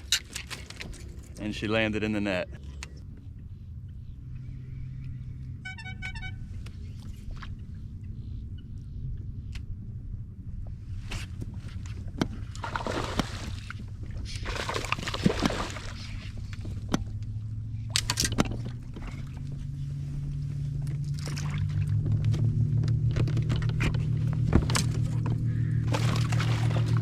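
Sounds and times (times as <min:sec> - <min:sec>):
gear clicks and knocks: 0:00.0 - 0:01.5, 0:16.1 - 0:21.3, 0:21.9 - 0:25.5
steady low hum: 0:00.0 - 0:27.0
water sloshing around kayak: 0:11.6 - 0:17.4, 0:18.4 - 0:27.0.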